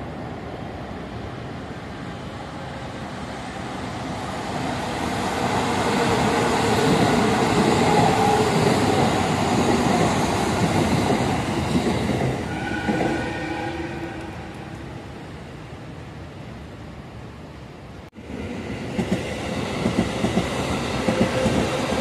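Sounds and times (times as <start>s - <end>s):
train wheels rumbling on rails: 2.6s - 15.0s, 18.2s - 22.0s.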